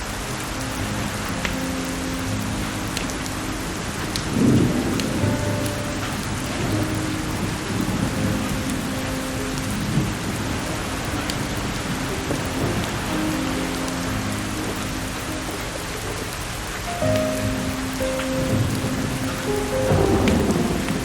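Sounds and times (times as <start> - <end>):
firewood crackling: 0.0 - 21.0
heavy rain: 0.0 - 21.0
soft music with held notes: 0.0 - 21.0
low rumble of thunder: 17.1 - 21.0.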